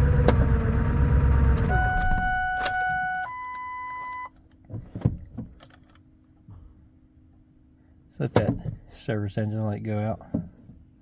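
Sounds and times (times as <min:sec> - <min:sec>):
diesel truck engine shutting off: 0:00.0 - 0:02.5
beeping tones: 0:01.7 - 0:04.3.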